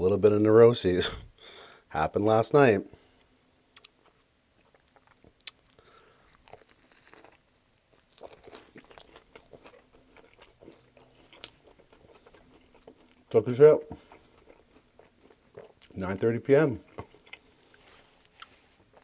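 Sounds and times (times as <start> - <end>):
faint chewing: 3.0 - 19.0
biting into sandwich: 3.7 - 16.0, 16.8 - 19.0
crunching toasted crust: 3.8 - 19.0.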